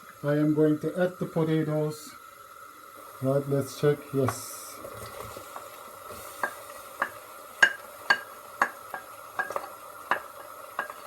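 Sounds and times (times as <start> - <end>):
gentle frying sizzle: 0.0 - 11.0
utensil knocking against pot: 6.4 - 11.0.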